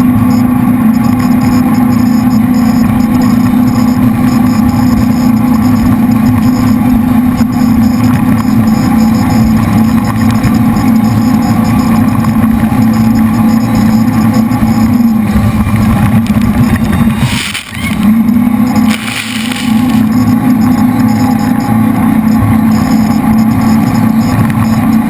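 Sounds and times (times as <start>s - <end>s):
boat engines droning: 0.0s - 25.0s
rush of higher noise: 10.9s - 24.3s.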